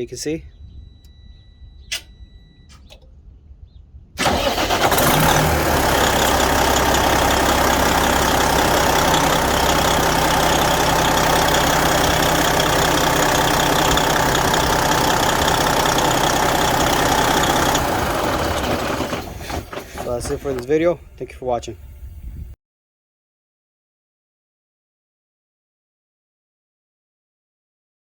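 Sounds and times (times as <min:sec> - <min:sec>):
short beep: 0:00.5 - 0:03.0
diesel engine starting and idling: 0:04.2 - 0:22.5.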